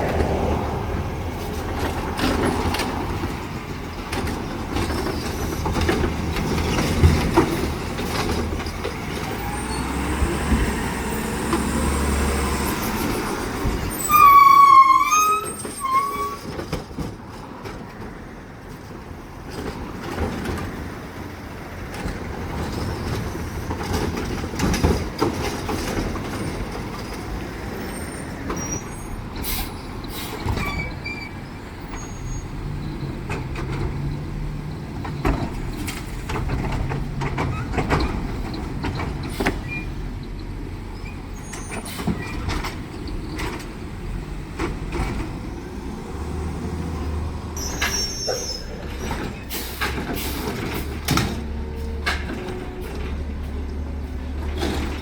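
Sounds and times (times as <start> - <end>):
garbage truck diesel engine: 0.0 - 55.0
air brakes hissing: 27.9 - 31.0, 47.6 - 52.3.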